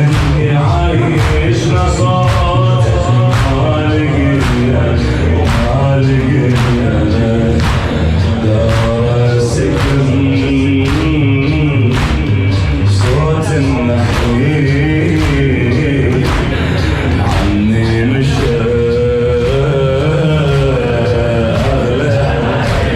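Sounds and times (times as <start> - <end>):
man chanting: 0.0 - 22.9
sharp rhythmic beats: 0.0 - 22.9.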